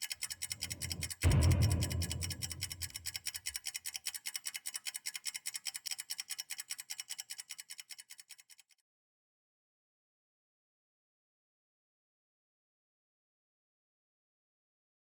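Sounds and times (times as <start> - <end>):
deep low ringing hit: 0.6 - 3.0.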